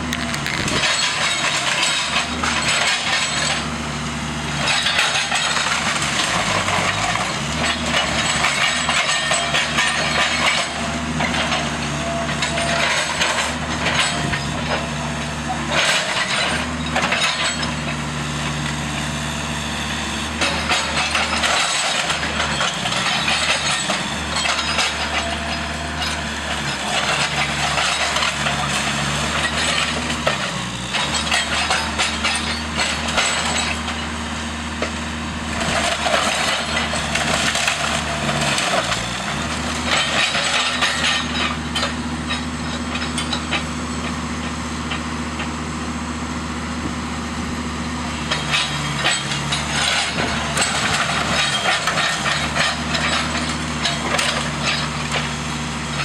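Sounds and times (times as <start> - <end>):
timber cracking and splintering: 0.0 - 0.8
heavy machine engine running: 0.0 - 56.0.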